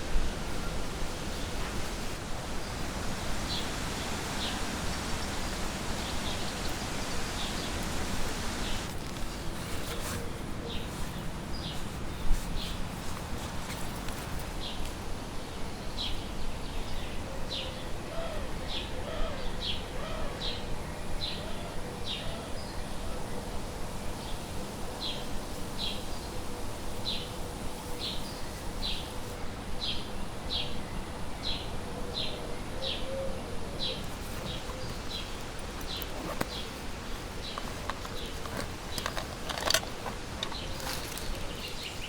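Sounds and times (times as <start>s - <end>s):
steady background hiss: 0.0s - 42.0s.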